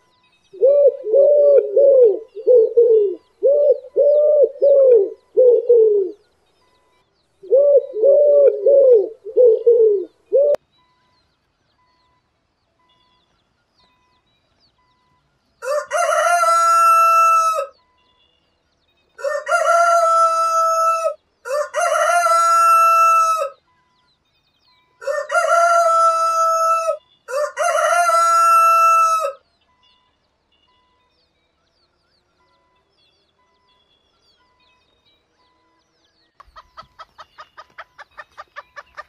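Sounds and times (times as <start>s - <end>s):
rooster crowing: 15.6s - 17.8s, 19.2s - 23.6s, 25.0s - 29.4s.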